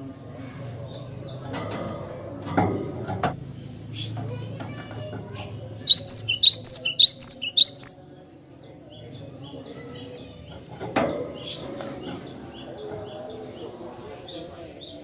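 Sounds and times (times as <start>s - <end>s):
bird singing whistled notes: 5.9s - 8.0s.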